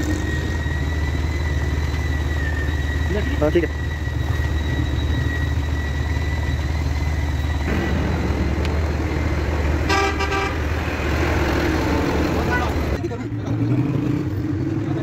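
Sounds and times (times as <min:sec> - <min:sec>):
thin steady whine: 0:00.0 - 0:11.1
vehicle engine rumbling: 0:00.0 - 0:15.0
short horn toot: 0:09.9 - 0:10.6.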